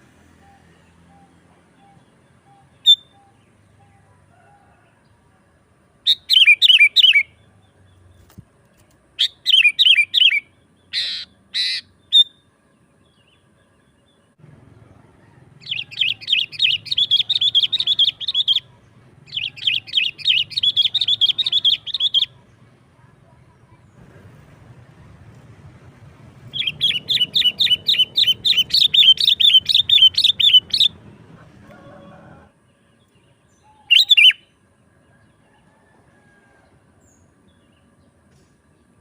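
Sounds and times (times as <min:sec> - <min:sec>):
bird calling and chattering: 0:06.1 - 0:07.3, 0:09.2 - 0:12.4, 0:15.6 - 0:22.5, 0:26.5 - 0:31.5, 0:33.8 - 0:34.4.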